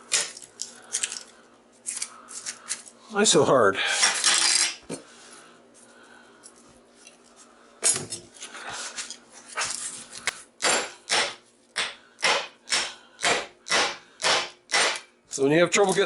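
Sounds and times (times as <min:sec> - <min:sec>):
hammer striking metal: 0:10.6 - 0:15.1.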